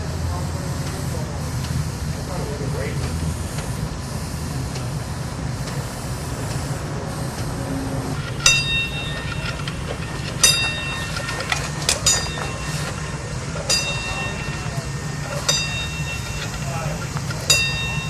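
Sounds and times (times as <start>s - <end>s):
train cars rumbling on rails: 0.0s - 18.0s
sharp metallic clanks: 8.2s - 18.0s.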